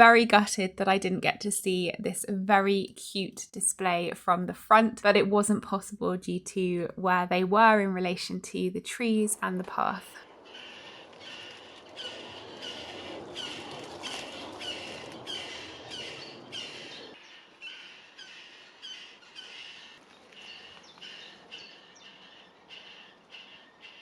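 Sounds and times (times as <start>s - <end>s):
small birds calling: 10.2s - 24.0s.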